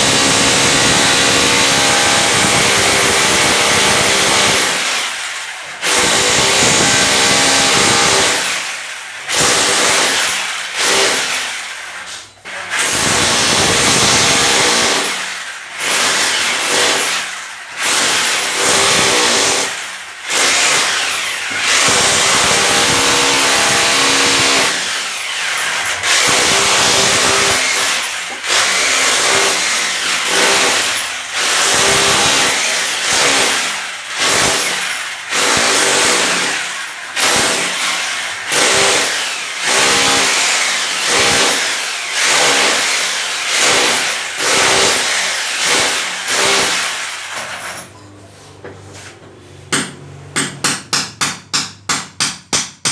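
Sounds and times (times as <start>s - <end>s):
electric power tool motor: 20.3s - 33.6s.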